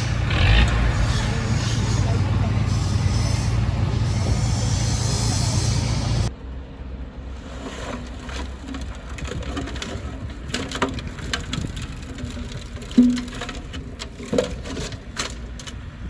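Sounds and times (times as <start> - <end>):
heavy machinery engine running: 0.0 - 6.3
low engine rumble: 0.0 - 7.6.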